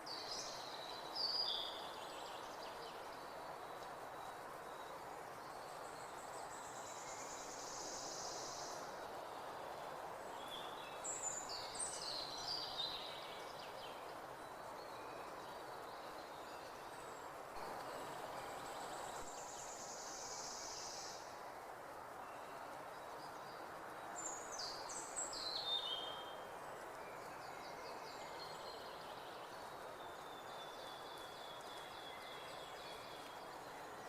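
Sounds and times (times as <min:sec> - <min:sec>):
steady background hiss: 0:00.0 - 0:34.0
birdsong: 0:22.2 - 0:34.0.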